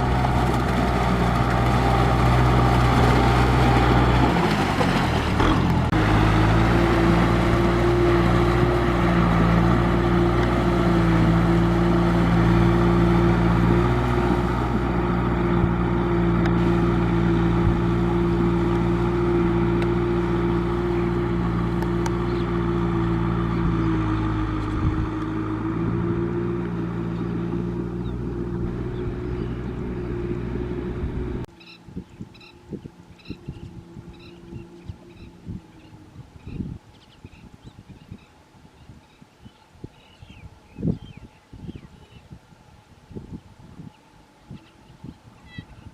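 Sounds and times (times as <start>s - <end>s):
tractor engine running: 0.0s - 36.7s.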